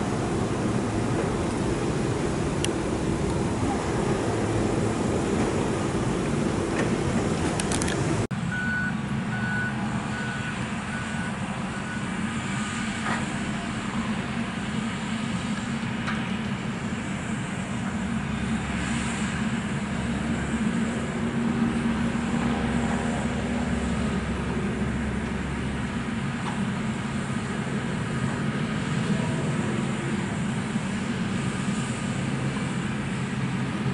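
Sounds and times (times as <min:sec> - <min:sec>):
heavy vehicles rumbling: 0:00.0 - 0:33.9
backup alarm beeping: 0:08.5 - 0:12.1.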